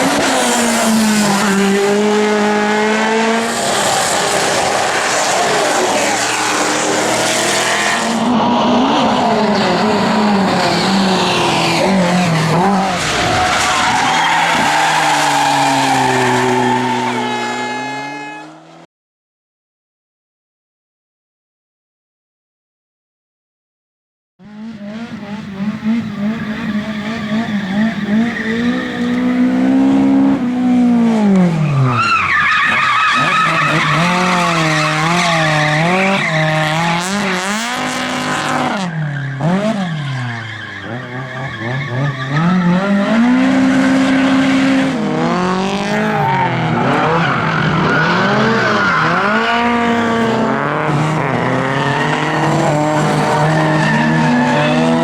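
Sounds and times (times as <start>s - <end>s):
race car engine revving: 0.0s - 18.8s, 24.4s - 55.0s
tyre squeal: 25.9s - 30.0s, 31.5s - 37.6s, 38.6s - 44.9s.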